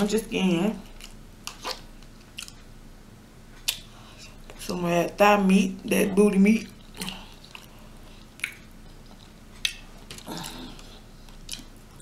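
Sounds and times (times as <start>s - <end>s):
quiet chewing: 0.8s - 2.7s, 6.6s - 12.0s
wet mouth clicks: 8.3s - 8.7s.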